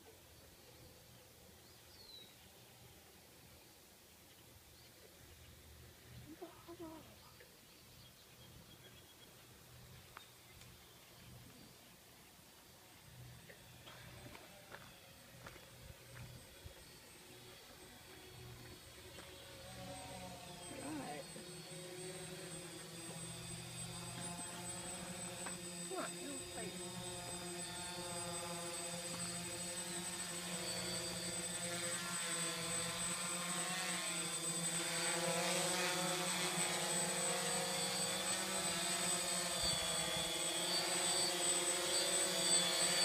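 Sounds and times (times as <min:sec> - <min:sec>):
drone propellers buzzing: 0:09.3 - 0:43.0.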